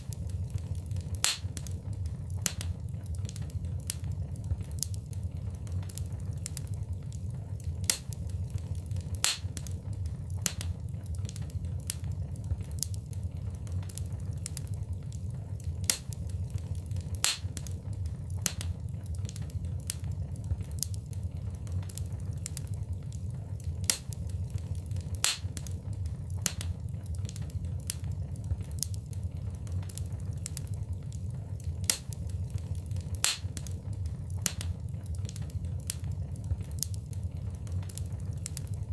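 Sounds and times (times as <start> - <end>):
fire crackling: 0.0 - 38.9
steady low rumble: 0.0 - 38.9
sharp pops: 1.2 - 1.7, 17.2 - 17.5, 33.2 - 33.5.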